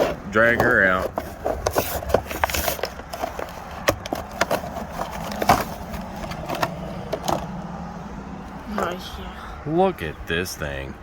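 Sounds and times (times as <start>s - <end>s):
packaging clicks and crackles: 0.5s - 7.4s.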